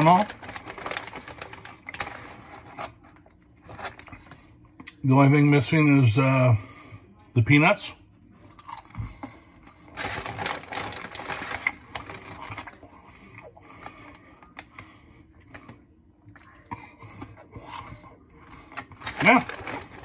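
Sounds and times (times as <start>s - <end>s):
snack bag crinkling: 0.0s - 4.5s, 8.5s - 15.8s, 16.5s - 20.0s
popcorn crunching while chewing: 0.0s - 5.1s, 8.4s - 20.0s.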